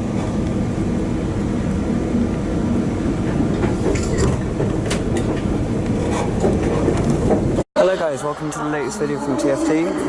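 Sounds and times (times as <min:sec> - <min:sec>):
diesel train engine drone: 0:00.0 - 0:10.0
metal clanks and squeals: 0:03.8 - 0:04.5.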